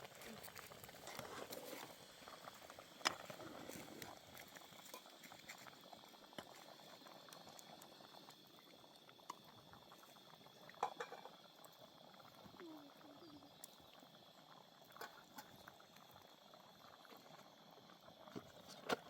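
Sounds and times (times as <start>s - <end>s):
wood fire crackling: 0.0s - 10.4s
fire popping: 0.0s - 19.0s.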